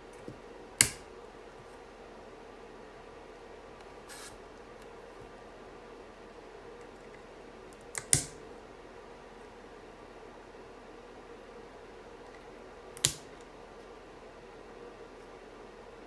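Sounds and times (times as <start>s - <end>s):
small keyboard clicks: 0.8s - 1.0s, 7.7s - 8.4s, 13.0s - 13.2s
sharp plastic snap: 0.8s - 1.1s, 7.8s - 8.4s, 13.0s - 13.5s.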